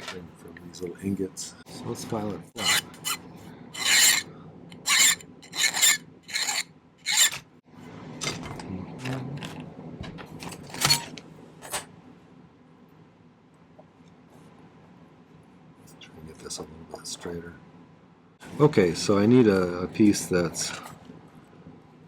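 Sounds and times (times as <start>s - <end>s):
hand file filing metal wire: 2.6s - 3.2s, 3.8s - 7.4s.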